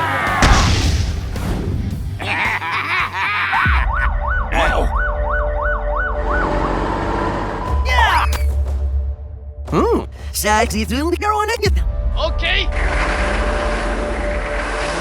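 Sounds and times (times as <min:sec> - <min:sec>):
emergency vehicle siren: 0:03.7 - 0:08.2.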